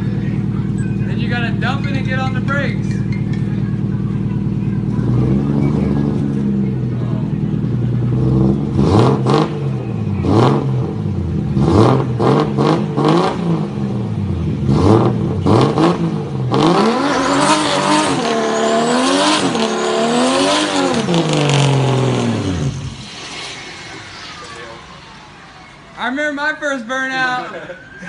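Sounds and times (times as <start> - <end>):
car engine revving: 0.0 - 25.6
tyres squealing in a burnout: 16.5 - 26.0.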